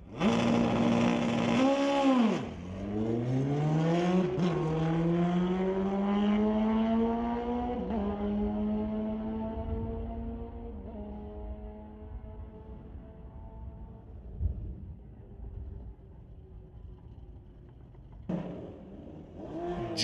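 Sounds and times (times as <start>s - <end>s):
racing engine revving: 0.1s - 10.4s, 18.3s - 20.0s.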